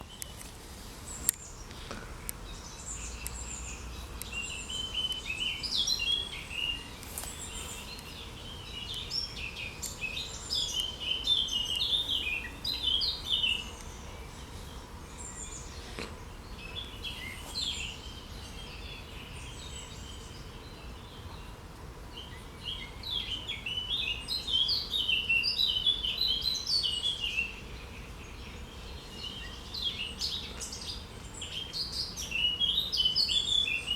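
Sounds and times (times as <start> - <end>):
songbirds chirping: 0.0 - 33.9.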